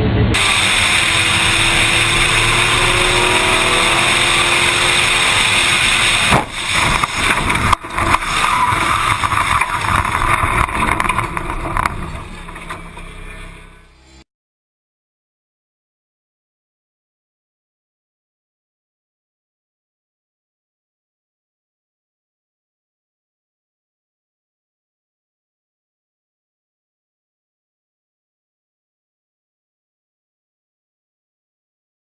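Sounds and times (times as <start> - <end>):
car engine: 0.0 - 14.2
road noise: 0.0 - 14.2
sharp bangs: 0.4 - 14.0.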